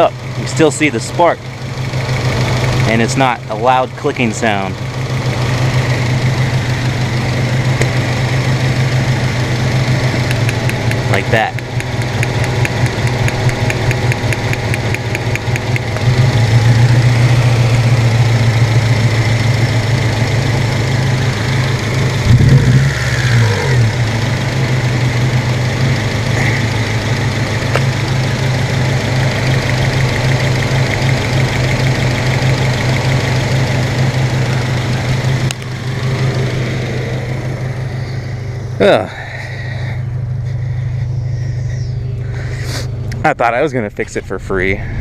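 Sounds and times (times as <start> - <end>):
engine idling roughly: 0.0 - 45.0
fast ticking: 10.2 - 16.1.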